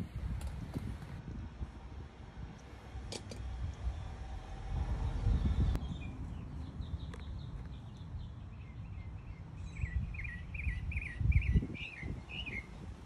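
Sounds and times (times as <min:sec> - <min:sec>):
bird chirping: 0:05.0 - 0:12.8.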